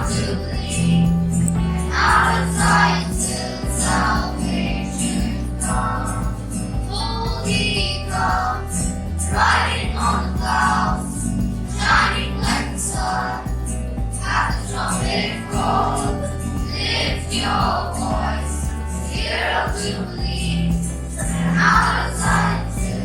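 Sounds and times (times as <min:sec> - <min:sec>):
group singing worship song: 0:00.0 - 0:23.0
instrumental backing with bass: 0:00.0 - 0:23.0.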